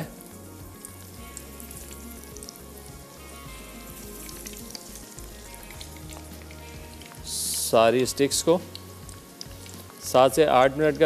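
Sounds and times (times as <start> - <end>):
chicken sizzling in oil: 0.0 - 11.0
light crackle: 8.6 - 10.2.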